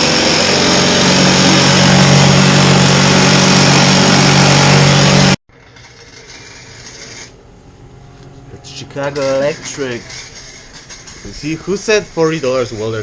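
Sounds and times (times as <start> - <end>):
welding arc buzzing and crackling: 0.0 - 7.4
low hum: 0.0 - 11.6.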